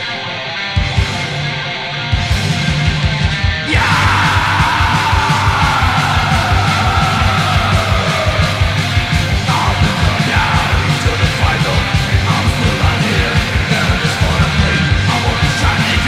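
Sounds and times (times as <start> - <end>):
distorted guitars: 0.0 - 16.0
fast drumming: 2.3 - 16.0
shouted vocals: 3.6 - 16.0.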